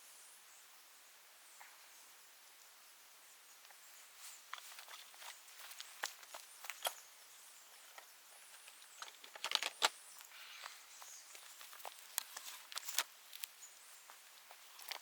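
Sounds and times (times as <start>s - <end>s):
bamboo debris crackling: 4.5s - 7.0s, 8.5s - 10.4s, 11.3s - 13.6s, 14.2s - 15.0s.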